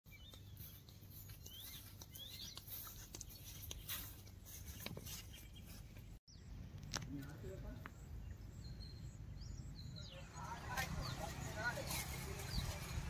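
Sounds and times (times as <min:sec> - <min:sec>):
footsteps in sandals on grass: 0:00.1 - 0:06.2, 0:10.6 - 0:13.0
rising bird chirps: 0:00.1 - 0:06.6.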